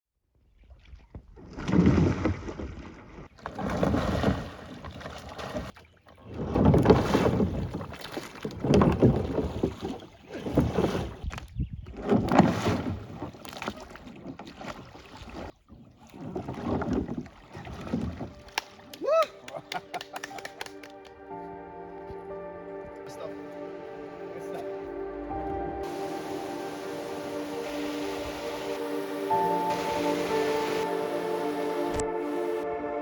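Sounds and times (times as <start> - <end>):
paddle swishing and splashing water: 0.5 - 20.6, 23.4 - 32.6
wind on microphone: 8.6 - 13.2, 25.3 - 32.6.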